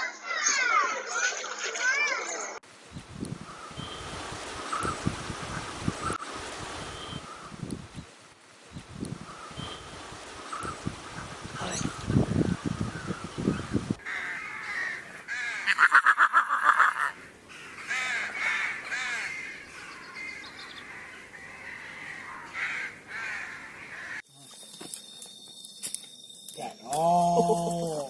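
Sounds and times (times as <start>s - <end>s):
outdoor background: 0.0s - 28.0s
birds calling harshly: 3.4s - 6.2s, 9.2s - 24.3s.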